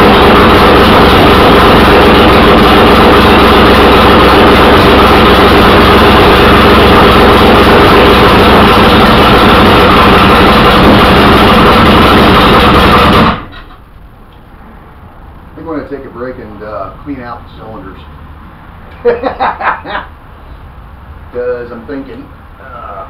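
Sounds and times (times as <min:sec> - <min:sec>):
car engine running loud: 0:00.0 - 0:13.6.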